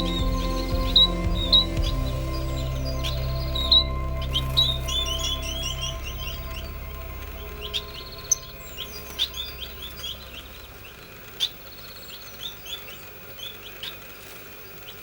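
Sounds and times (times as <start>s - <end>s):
low background music: 0.0s - 11.5s
finches chirping: 0.0s - 15.0s.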